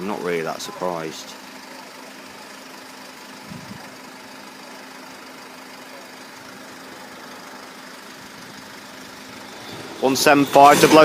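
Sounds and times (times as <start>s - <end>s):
engines idling: 0.0s - 11.0s
even hiss: 9.5s - 11.0s.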